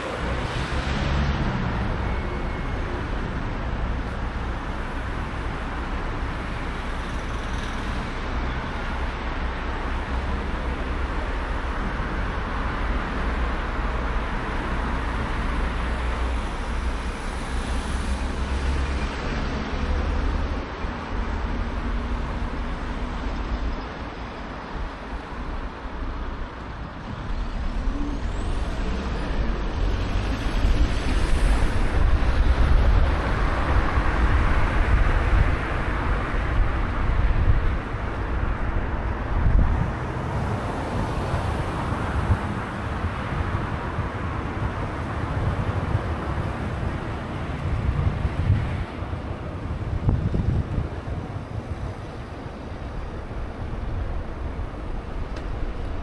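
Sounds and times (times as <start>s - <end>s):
road and traffic noise: 0.0s - 56.0s
wind rushing over microphone: 24.0s - 56.0s.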